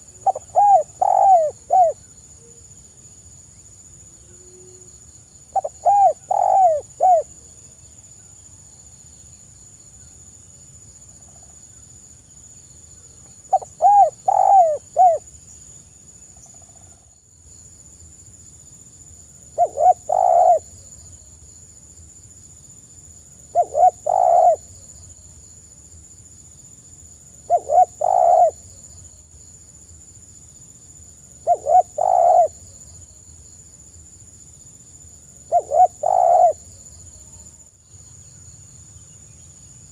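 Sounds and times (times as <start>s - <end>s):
dove cooing: 0.0s - 2.0s, 5.6s - 7.4s, 13.5s - 15.2s, 19.6s - 20.8s, 23.5s - 24.7s, 27.5s - 28.6s, 31.4s - 32.6s, 35.5s - 36.6s.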